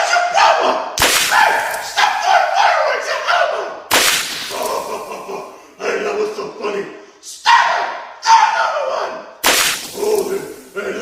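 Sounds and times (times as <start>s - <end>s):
sharp cracks: 1.0s - 2.2s, 3.9s - 5.3s, 9.4s - 10.8s.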